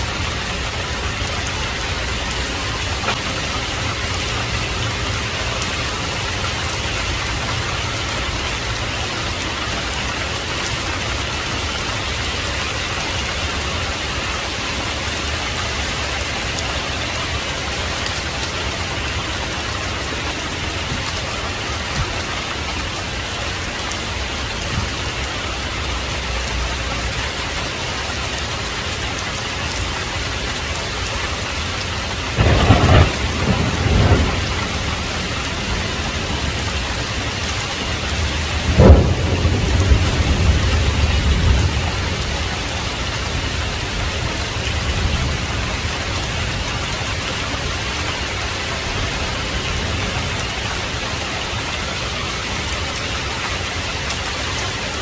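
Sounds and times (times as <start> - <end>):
heavy rain hissing: 0.0 - 55.0
loud thunderclap: 32.4 - 37.1, 38.3 - 42.2.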